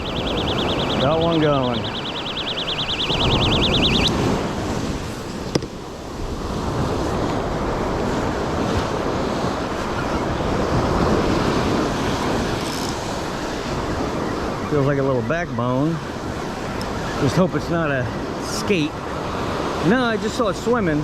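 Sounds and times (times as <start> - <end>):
high warbling buzz: 0.0 - 6.5
wind on microphone: 0.0 - 15.4
surf washing: 0.0 - 21.0.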